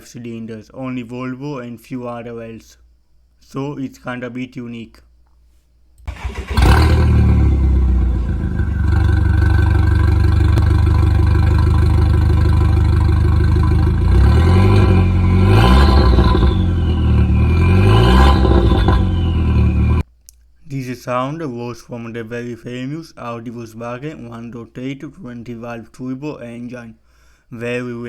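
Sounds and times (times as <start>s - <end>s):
engine cranking and starting: 6.0s - 20.0s
engine idling: 6.1s - 20.0s
engine revving: 6.1s - 20.0s.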